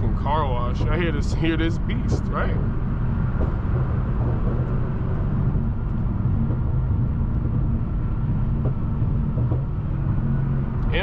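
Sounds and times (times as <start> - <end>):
car engine and exhaust drone: 0.0 - 11.0
road noise: 0.0 - 11.0.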